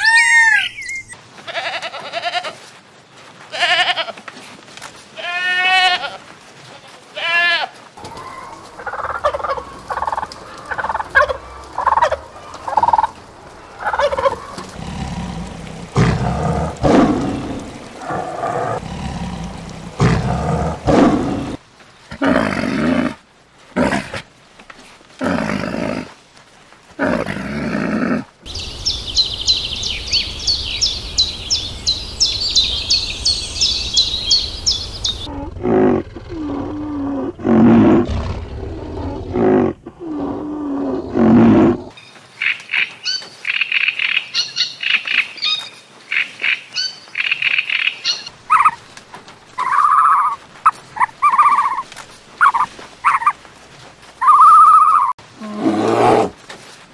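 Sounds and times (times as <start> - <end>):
animal calls: 0.0 - 1.2, 8.0 - 21.6, 46.4 - 48.9, 49.6 - 53.4, 54.2 - 56.3
turkeys gobbling: 8.0 - 14.8, 48.1 - 48.8, 49.6 - 53.4, 54.2 - 55.1.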